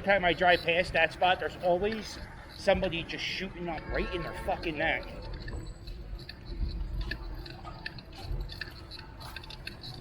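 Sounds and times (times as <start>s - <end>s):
bicycle clicks and rattles: 0.0s - 10.0s.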